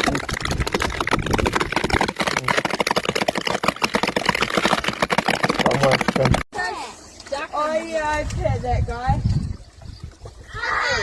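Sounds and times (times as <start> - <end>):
rock cracking and popping: 0.0 - 6.5.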